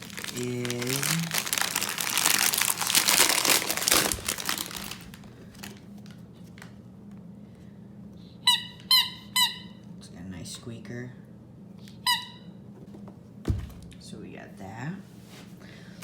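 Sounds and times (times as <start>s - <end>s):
packaging crinkling: 0.0s - 6.2s.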